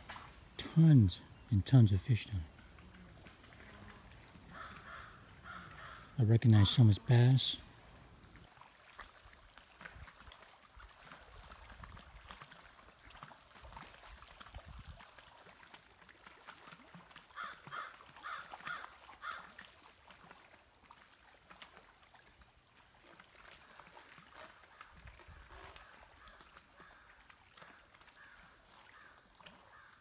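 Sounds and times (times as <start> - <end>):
bird calling: 4.4 - 7.6.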